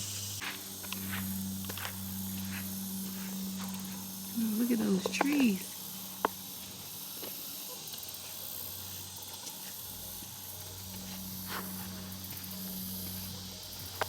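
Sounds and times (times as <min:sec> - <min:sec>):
low steady hum: 0:00.0 - 0:06.9, 0:08.7 - 0:14.0
insects trilling: 0:00.0 - 0:14.0.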